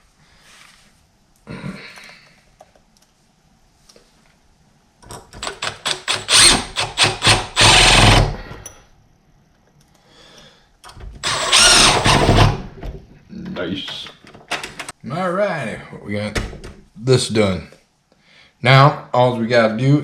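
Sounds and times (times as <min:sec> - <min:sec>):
power driver driving screws: 0:05.4 - 0:08.4, 0:11.2 - 0:12.6.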